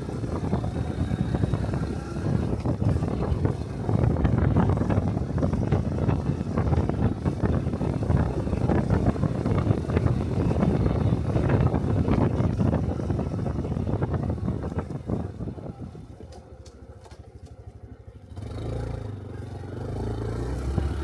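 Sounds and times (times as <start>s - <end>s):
wind buffeting microphone: 0.0s - 16.6s
motorcycle engine running: 0.0s - 21.0s.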